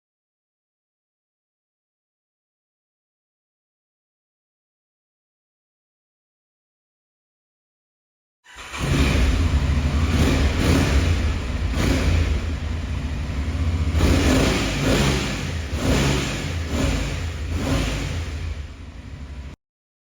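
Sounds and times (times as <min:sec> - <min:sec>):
motorcycle engine revving: 0:08.5 - 0:19.6.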